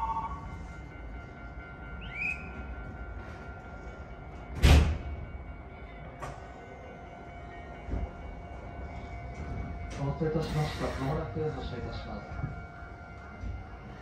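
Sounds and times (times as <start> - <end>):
train interior low rumble: 0.0 - 14.0.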